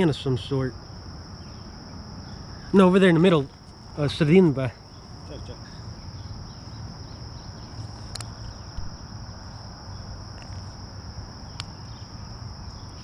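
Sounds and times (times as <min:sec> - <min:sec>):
insects droning: 0:00.0 - 0:13.0
sharp clicks: 0:08.1 - 0:08.9.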